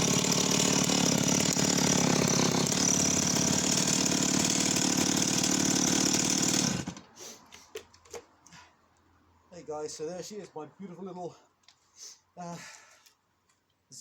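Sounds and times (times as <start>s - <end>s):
chainsaw running: 0.0s - 7.1s.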